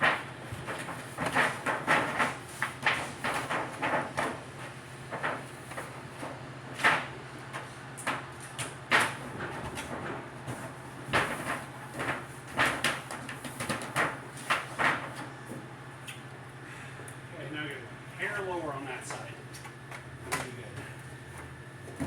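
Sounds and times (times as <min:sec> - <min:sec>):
steady low hum: 0:13.9 - 0:22.0.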